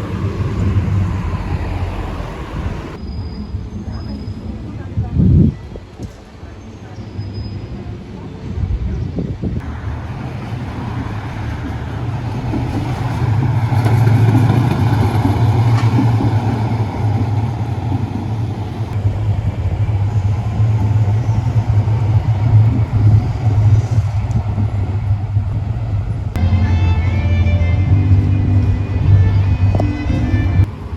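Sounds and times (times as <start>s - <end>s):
vehicle rumbling past: 0.0s - 3.0s, 9.6s - 26.5s, 27.7s - 30.9s.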